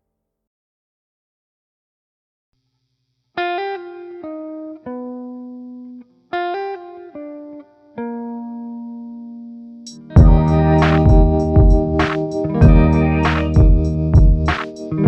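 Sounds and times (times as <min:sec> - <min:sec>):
plucked guitar music: 0:03.4 - 0:15.0.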